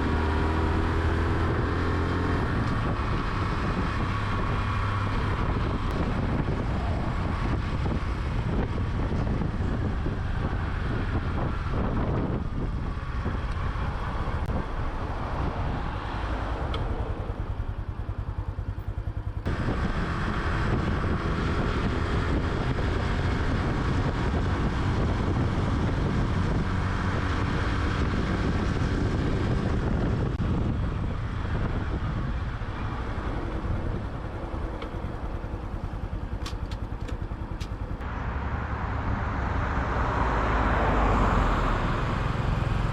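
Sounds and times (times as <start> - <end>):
wind noise on microphone: 0.0 - 42.9
small motorcycle engine running: 17.2 - 38.0.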